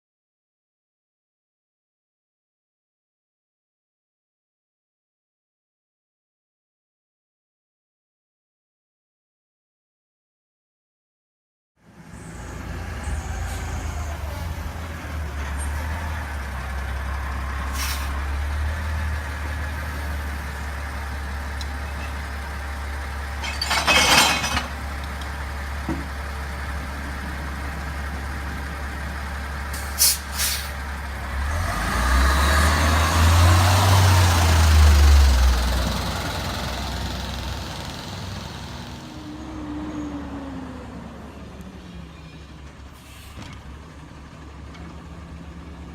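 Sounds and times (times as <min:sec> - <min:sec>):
garbage truck engine rumbling: 0:11.9 - 0:45.9
air brake hiss: 0:17.7 - 0:18.2, 0:29.7 - 0:30.8, 0:43.0 - 0:43.6.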